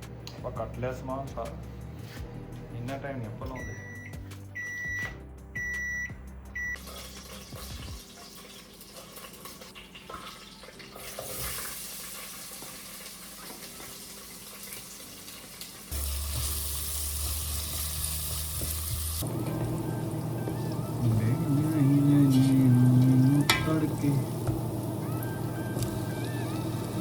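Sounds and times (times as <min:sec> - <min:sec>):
kitchen hiss: 0:10.3 - 0:19.2.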